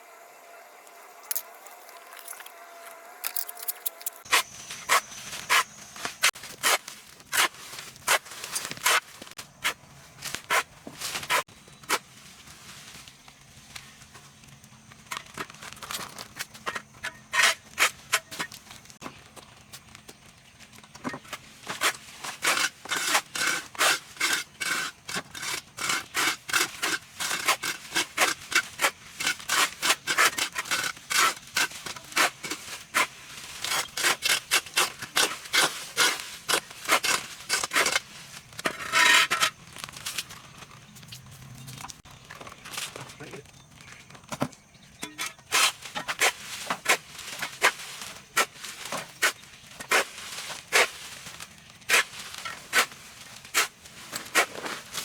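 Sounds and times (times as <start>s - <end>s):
scraping on a hard surface: 15.2s - 18.8s, 21.1s - 41.8s, 45.0s - 55.0s.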